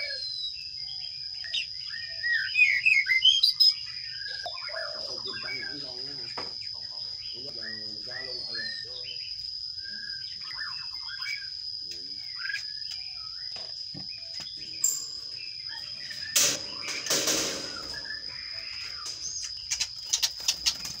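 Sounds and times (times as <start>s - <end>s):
sparrows chirping: 0.0s - 21.0s
wings fluttering: 14.4s - 21.0s.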